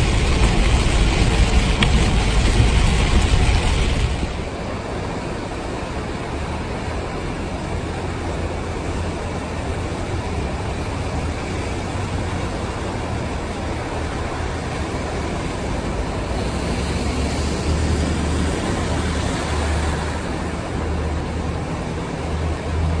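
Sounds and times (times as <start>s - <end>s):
low rumble: 0.0s - 5.0s
steady rain hiss: 0.0s - 23.0s.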